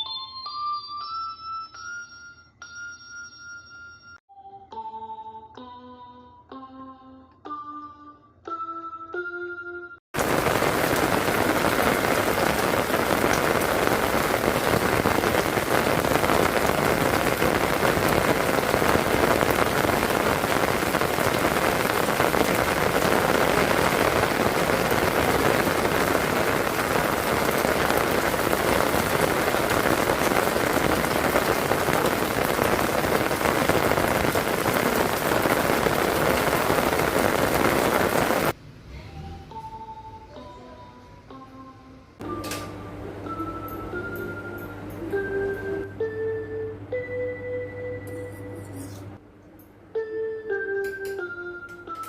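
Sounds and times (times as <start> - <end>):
heavy rain pouring: 10.2 - 38.6.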